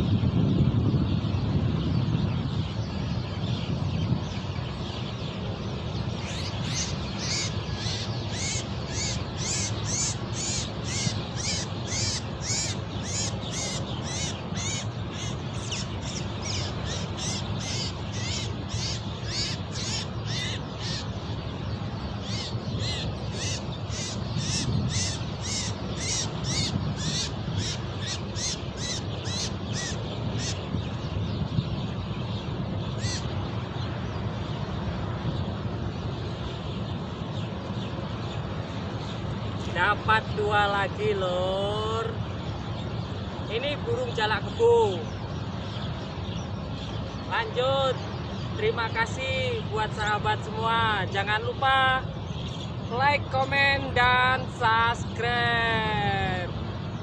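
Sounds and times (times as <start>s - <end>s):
harsh bird calls: 0.0s - 57.0s
low wind rumble: 0.0s - 57.0s.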